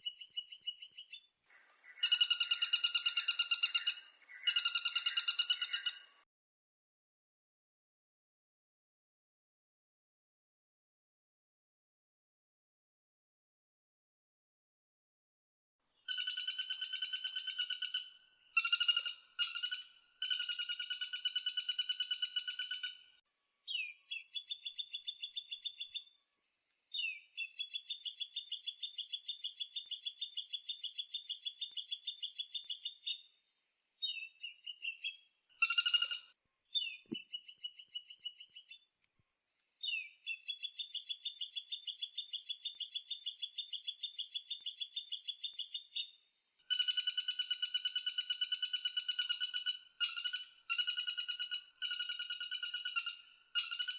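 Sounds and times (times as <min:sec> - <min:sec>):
woodpecker rattling call: 0:00.0 - 0:06.2, 0:16.1 - 0:23.0, 0:34.1 - 0:38.8, 0:46.7 - 0:53.9.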